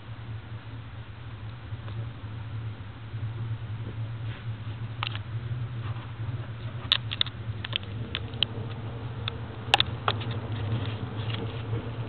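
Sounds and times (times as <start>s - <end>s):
train rumble and hum: 0.0s - 12.0s
sharp clicks and ticks: 6.9s - 11.5s.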